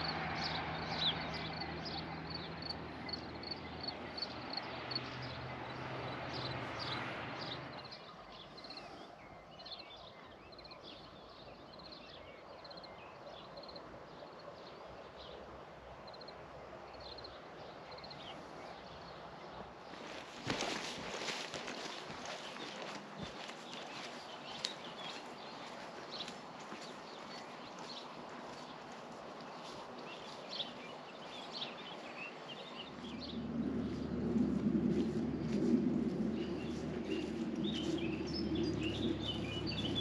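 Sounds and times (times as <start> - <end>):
outdoor ambience: 0.0 - 40.0
small birds chirping: 16.9 - 40.0
low hum: 32.6 - 40.0.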